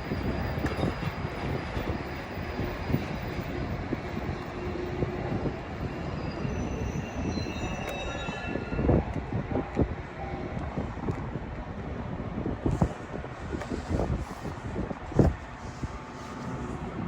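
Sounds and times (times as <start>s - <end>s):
train rail rumble: 0.0s - 17.0s
wheel squeal: 5.5s - 9.1s.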